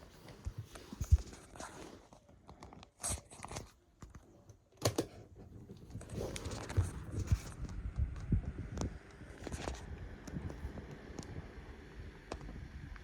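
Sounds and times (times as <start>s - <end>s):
low irregular rumble: 5.6s - 13.0s
desk fan clicks and taps: 5.9s - 11.6s, 12.2s - 13.0s.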